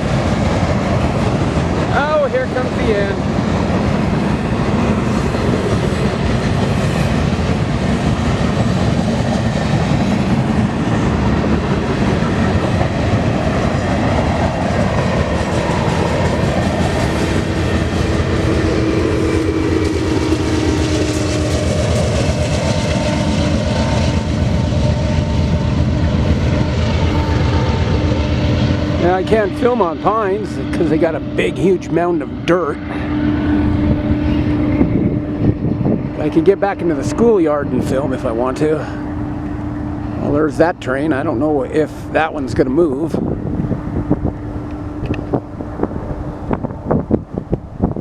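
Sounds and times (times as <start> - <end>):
train wheels clattering over rails: 0.0 - 31.0.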